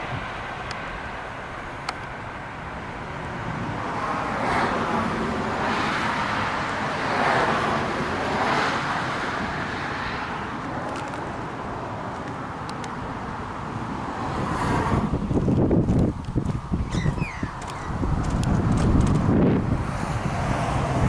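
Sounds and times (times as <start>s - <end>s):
vehicle driving past: 17.2s - 21.0s.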